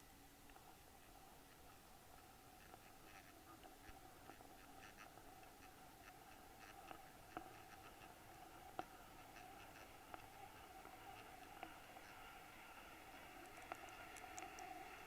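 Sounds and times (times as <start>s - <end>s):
faint steady hum: 0.0s - 15.0s
small clicks: 13.1s - 15.0s.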